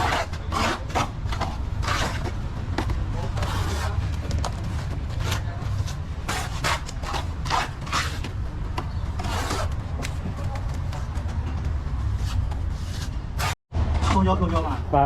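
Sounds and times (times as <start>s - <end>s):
trowel scraping a wall: 0.0s - 2.4s, 3.3s - 4.0s, 5.1s - 8.3s, 9.2s - 9.8s, 12.2s - 13.6s.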